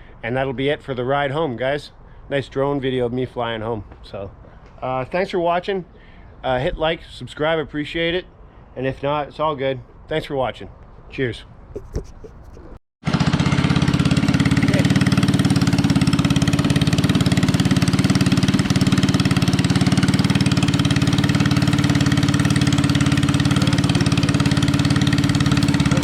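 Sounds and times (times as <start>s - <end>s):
small engine running steadily: 11.8s - 26.0s.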